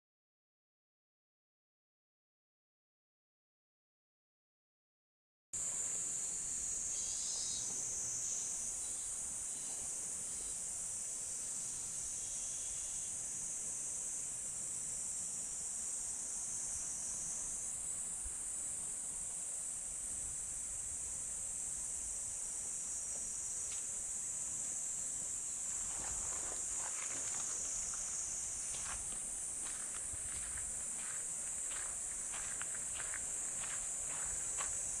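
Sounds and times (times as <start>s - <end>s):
insects singing: 5.7s - 13.2s, 22.9s - 35.0s.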